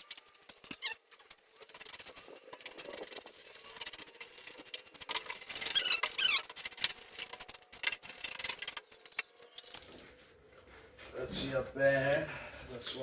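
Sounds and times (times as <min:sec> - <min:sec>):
short high squeaks: 0:00.5 - 0:01.7, 0:05.5 - 0:06.7.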